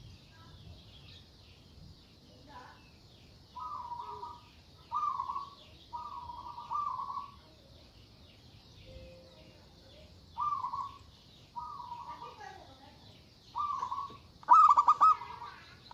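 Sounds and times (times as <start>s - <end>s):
faint high chirping: 0.0s - 15.9s
dove cooing: 3.6s - 7.4s, 10.4s - 11.0s, 13.6s - 15.9s.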